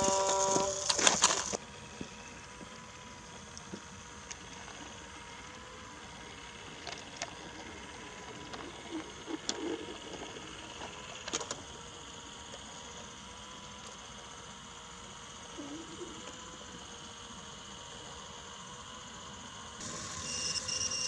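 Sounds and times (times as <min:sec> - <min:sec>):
toy train wheels clicking on track: 0:00.0 - 0:01.6
toy train motor hum: 0:00.0 - 0:21.0.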